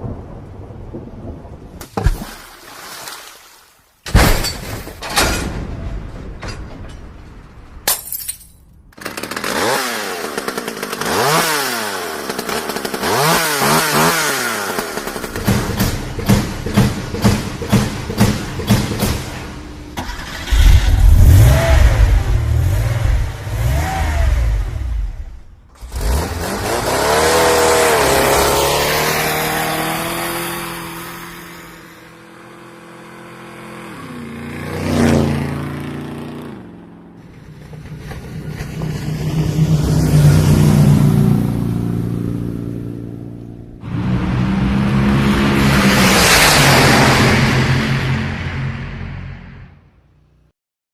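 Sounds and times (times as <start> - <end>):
loud low engine: 9.0 - 49.4
rapid rhythmic engine strokes: 9.4 - 20.3
motor vehicles passing: 13.2 - 49.7.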